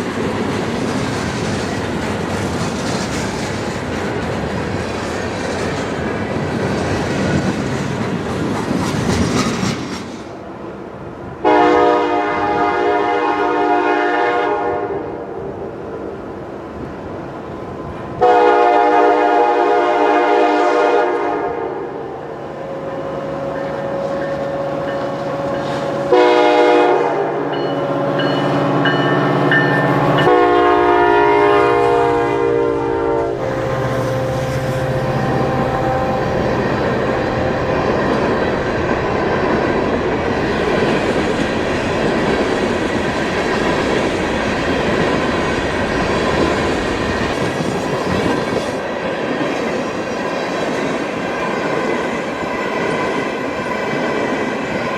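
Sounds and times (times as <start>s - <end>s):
train wheels rumbling on rails: 0.0s - 54.9s
locomotive air horn blasts: 11.4s - 15.2s, 18.2s - 22.0s, 22.6s - 28.4s, 29.8s - 37.8s.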